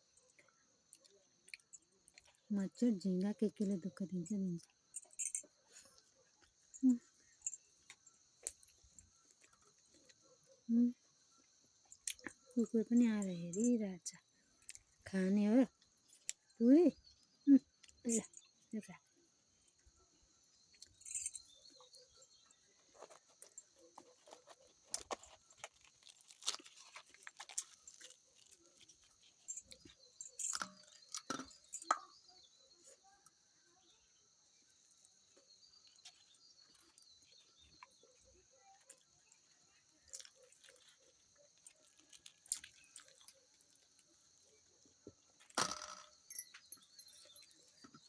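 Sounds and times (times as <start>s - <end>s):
person eating with crunches: 12.0s - 12.5s, 22.8s - 30.1s, 38.8s - 44.2s.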